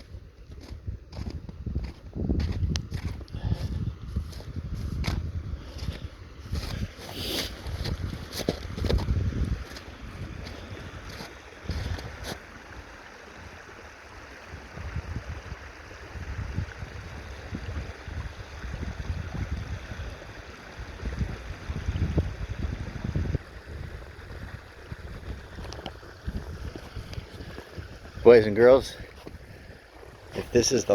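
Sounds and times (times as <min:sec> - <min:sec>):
wind buffeting microphone: 0:00.0 - 0:12.4, 0:14.5 - 0:30.9.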